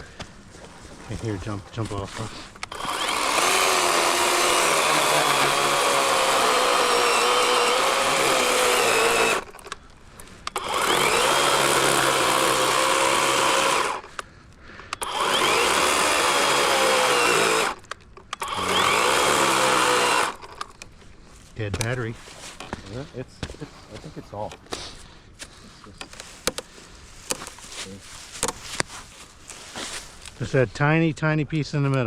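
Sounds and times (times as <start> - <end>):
electric chainsaw cutting log: 1.8 - 9.8, 10.4 - 14.2, 15.0 - 20.7.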